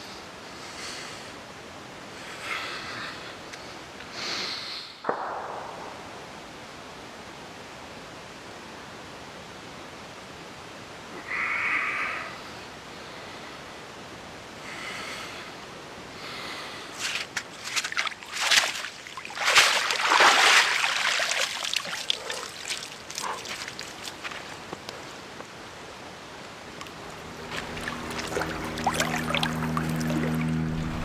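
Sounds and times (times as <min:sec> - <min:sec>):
water splashing and sloshing: 0:17.0 - 0:31.0.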